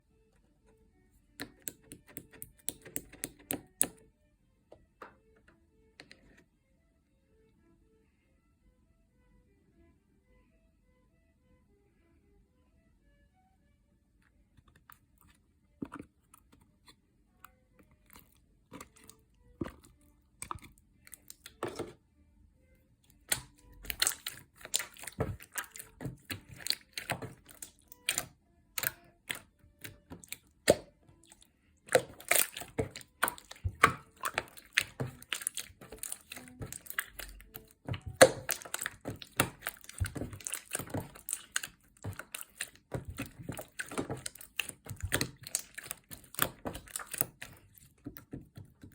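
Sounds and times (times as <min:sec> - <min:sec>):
slime crackling and popping: 0:23.2 - 0:48.9.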